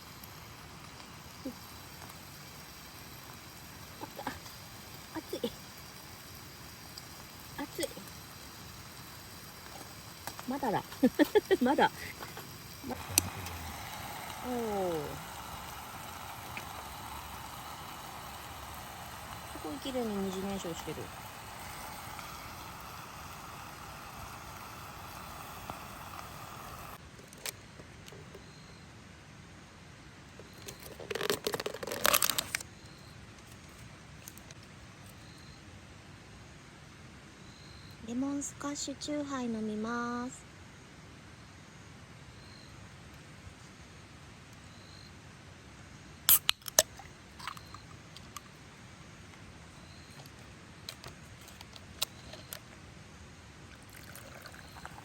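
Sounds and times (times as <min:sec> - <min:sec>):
wood fire hissing in stove: 0:00.0 - 0:27.0, 0:48.6 - 0:55.0
can pull tab cracking open: 0:46.3 - 0:48.4.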